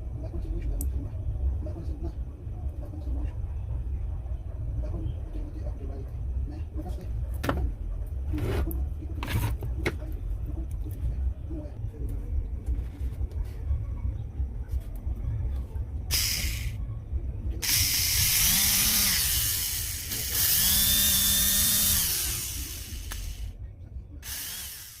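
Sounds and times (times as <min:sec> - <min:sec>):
blender motor whine: 0:16.1 - 0:16.7, 0:17.6 - 0:23.5, 0:24.2 - 0:25.0.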